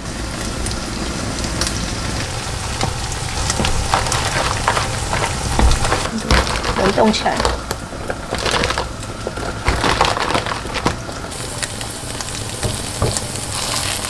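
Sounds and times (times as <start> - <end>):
food sizzling in a pan: 0.0 - 14.0
pans and utensils knocking: 2.8 - 11.1, 12.6 - 13.8.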